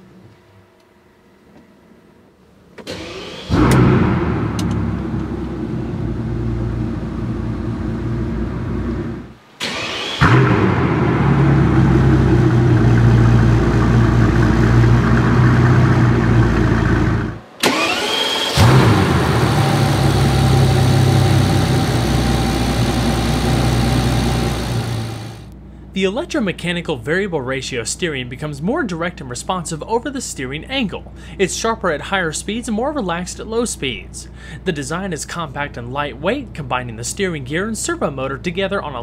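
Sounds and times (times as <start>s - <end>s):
engine cranking: 9.6s - 10.5s, 12.7s - 25.6s
engine revving and idling: 10.2s - 25.6s.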